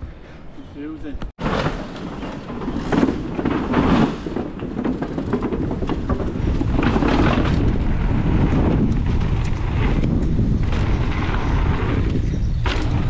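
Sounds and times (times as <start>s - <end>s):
bike clicks and rattles: 1.3s - 13.0s
bike tyre roar: 1.4s - 13.0s
wind buffeting microphone: 4.2s - 13.0s.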